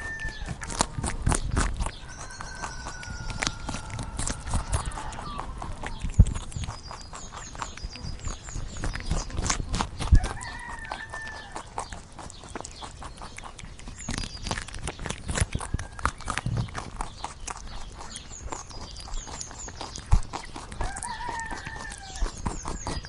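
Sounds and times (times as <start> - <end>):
rooster crowing: 0.0 - 0.7, 2.0 - 5.8, 10.2 - 11.7, 20.8 - 22.3.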